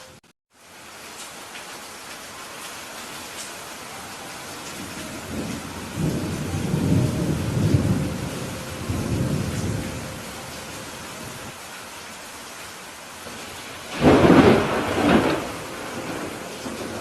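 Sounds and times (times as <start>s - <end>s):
rain hissing: 0.0s - 17.0s
rolling thunder: 4.8s - 11.5s, 13.4s - 17.0s.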